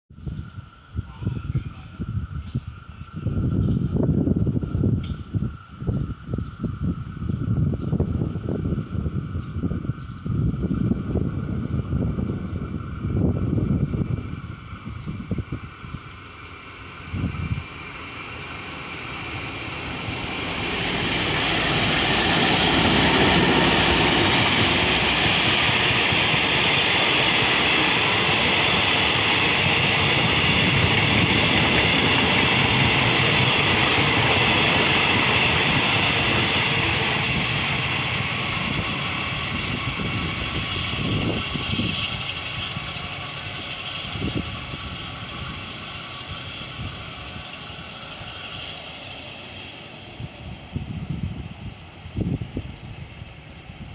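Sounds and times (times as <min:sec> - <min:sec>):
diesel locomotive passing: 0:00.2 - 0:53.9
train wheels clacking over rail joints: 0:20.5 - 0:38.0.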